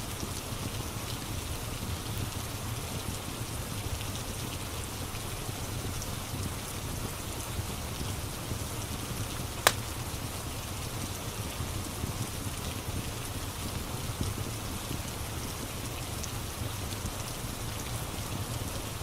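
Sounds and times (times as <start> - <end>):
steady rain: 0.0 - 19.0
wood fire crackling: 3.0 - 18.8
sharp pop from fire: 9.6 - 9.9.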